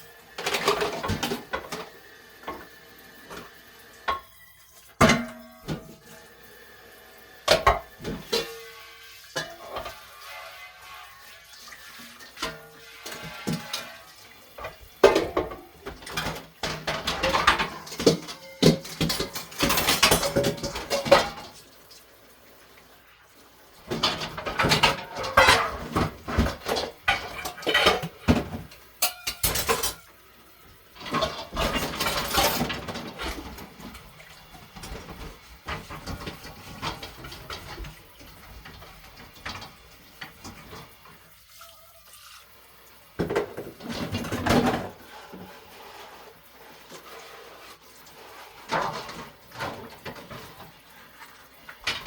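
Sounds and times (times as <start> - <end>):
running tap water: 0.0 - 52.0
dishes and cutlery clattering: 0.4 - 2.7, 5.0 - 6.1, 7.5 - 10.3, 12.0 - 21.6, 23.8 - 30.1, 31.0 - 41.1, 43.2 - 45.6, 48.6 - 50.7, 51.7 - 52.0.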